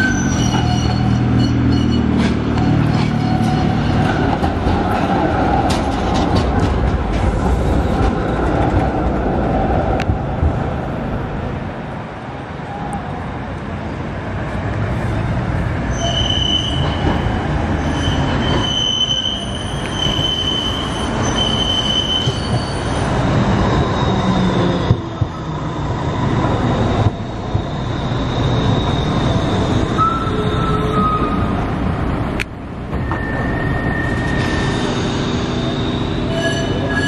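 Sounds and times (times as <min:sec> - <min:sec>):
tram wheels squealing: 0:00.0 - 0:08.0, 0:15.0 - 0:31.8, 0:32.9 - 0:37.0
tram wheels rumbling on rails: 0:00.0 - 0:37.0.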